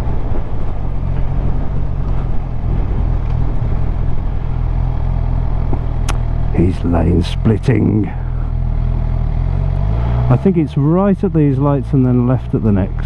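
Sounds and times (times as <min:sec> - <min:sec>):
wind rushing over microphone: 0:00.0 - 0:06.2
motorcycle engine running: 0:00.0 - 0:13.0.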